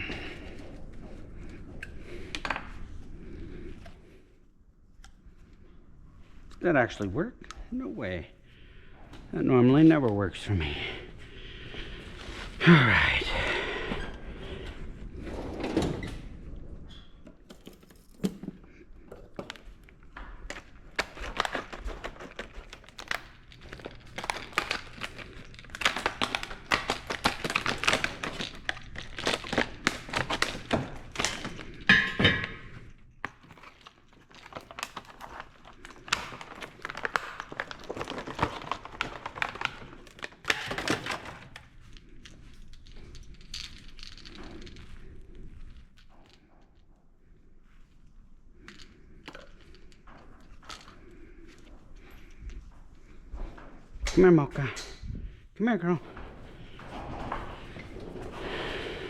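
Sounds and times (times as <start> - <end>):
tools and metal parts clinking: 40.2 - 46.9.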